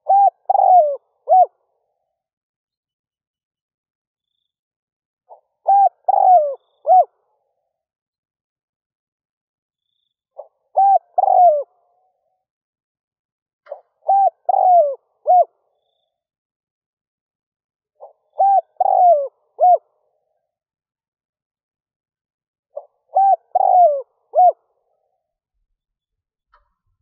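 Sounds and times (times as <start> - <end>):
dove cooing: 0.0 - 1.5, 5.3 - 7.2, 10.4 - 11.8, 13.7 - 15.6, 18.0 - 20.0, 22.7 - 24.6.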